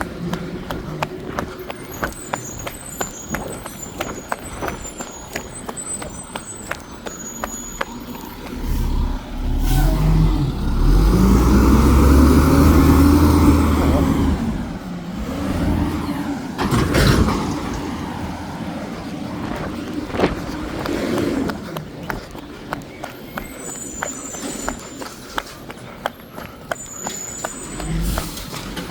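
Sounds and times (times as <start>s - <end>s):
truck diesel engine revving: 7.9s - 22.8s.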